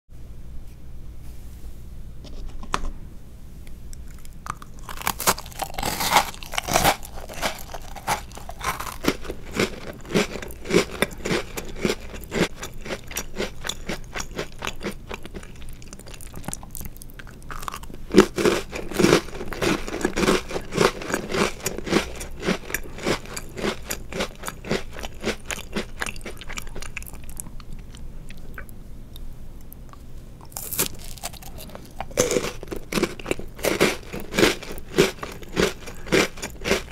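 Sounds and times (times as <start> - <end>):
crunching cookie bites and chewing: 4.0 - 36.9.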